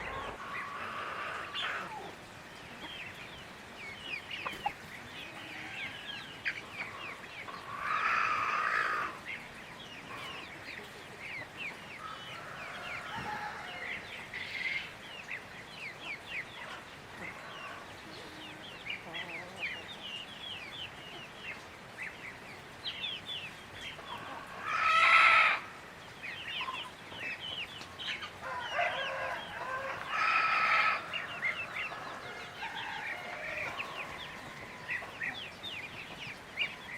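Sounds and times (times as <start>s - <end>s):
rooster crowing: 12.3s - 14.1s, 28.4s - 34.9s.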